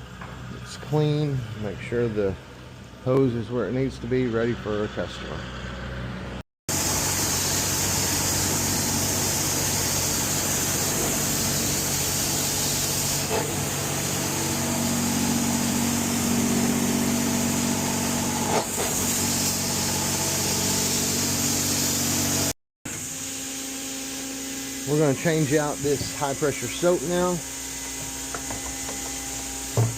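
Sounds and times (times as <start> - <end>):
car wash machinery running: 0.0 - 29.9
deeper machine tone: 13.3 - 21.4.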